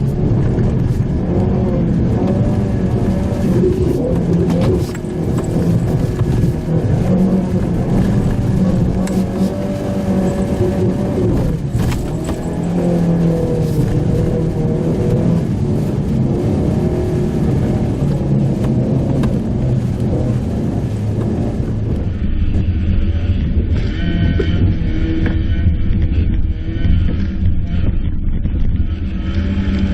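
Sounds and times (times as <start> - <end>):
small car engine running: 20.0 - 29.9.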